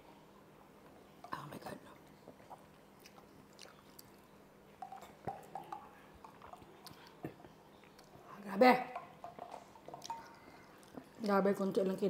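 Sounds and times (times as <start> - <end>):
soft mouth clicks and smacks: 2.0 - 4.2, 4.8 - 8.2, 9.2 - 11.4.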